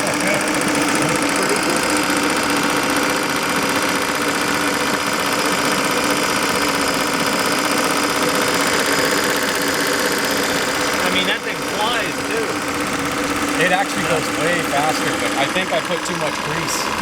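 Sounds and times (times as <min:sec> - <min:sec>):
model steam engine running: 0:00.0 - 0:17.0.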